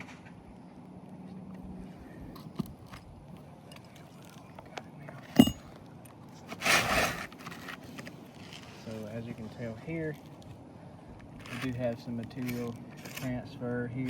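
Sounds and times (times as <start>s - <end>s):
sharp metallic clink: 5.3s - 5.7s
tool scraping shingles: 6.4s - 9.1s, 11.4s - 14.0s.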